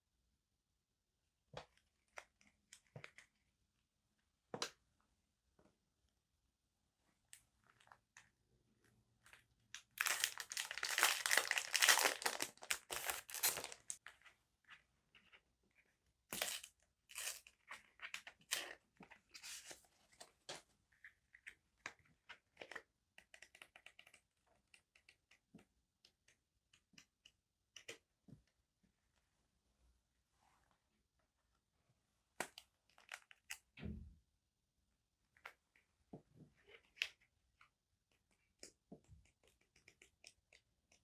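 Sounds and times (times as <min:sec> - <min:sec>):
paper crinkling and tearing: 0:10.0 - 0:14.0
paper rustling: 0:10.0 - 0:14.0.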